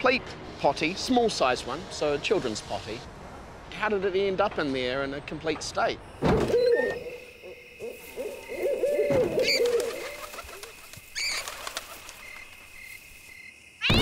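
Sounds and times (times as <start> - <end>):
bird low wavering coos: 6.5 - 11.5.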